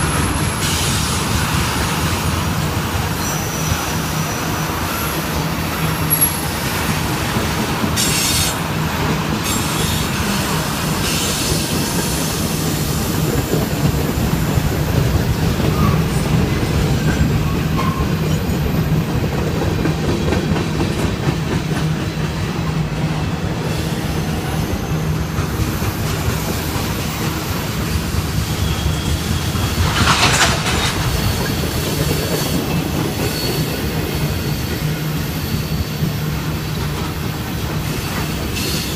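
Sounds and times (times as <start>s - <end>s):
freight train wheels rumbling: 0.0s - 38.9s
high wheel squeals: 3.0s - 6.9s, 26.4s - 36.8s, 37.8s - 38.9s.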